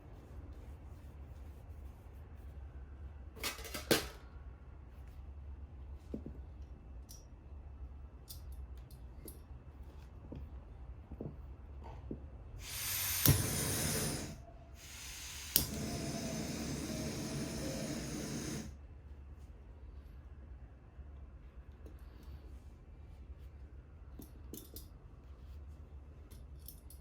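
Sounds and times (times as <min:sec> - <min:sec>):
gas burner hissing: 0:12.6 - 0:18.8.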